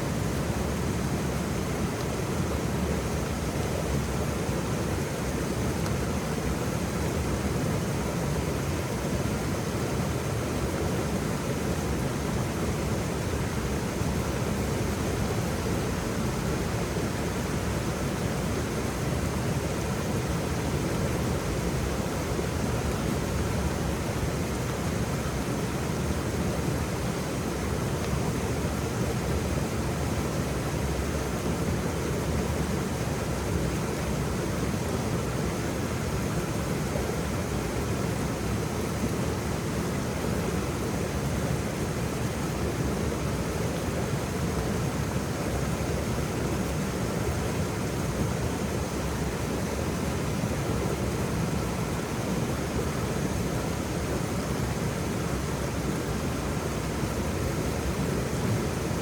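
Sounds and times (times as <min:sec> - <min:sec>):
waterfall rushing: 0:25.5 - 0:59.0.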